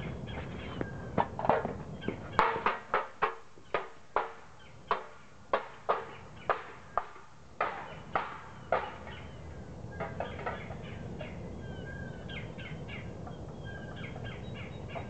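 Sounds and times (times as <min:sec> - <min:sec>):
bird harsh calls: 0:01.9 - 0:02.6, 0:07.8 - 0:15.0.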